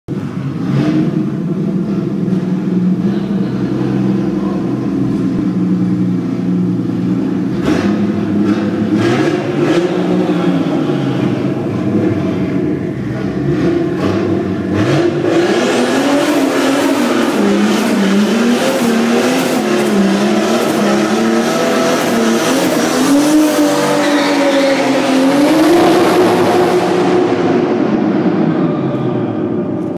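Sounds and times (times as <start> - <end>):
spinning tyre rush: 0.1 - 29.9
engine revving hard: 7.5 - 28.9.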